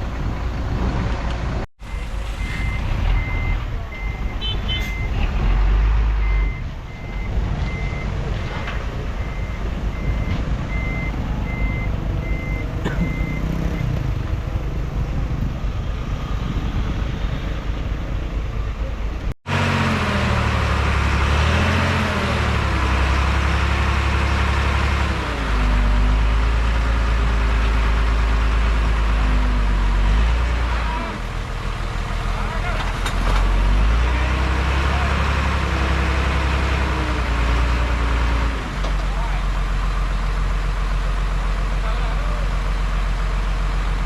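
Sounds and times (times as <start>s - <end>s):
deep diesel engine working: 0.0s - 44.0s
diesel machinery running: 0.0s - 44.0s
reversing alarm beeping: 1.8s - 5.2s, 6.1s - 8.2s, 9.2s - 14.0s.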